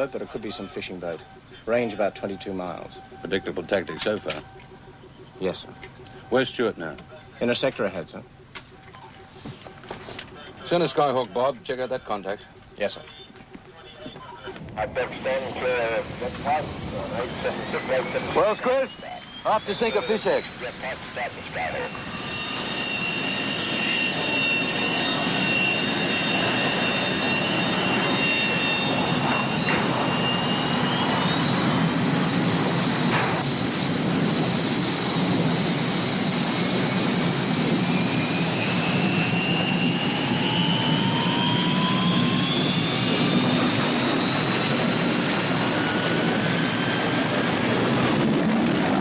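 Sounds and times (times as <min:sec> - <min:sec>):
engine with rising whine: 0:13.9 - 0:49.0.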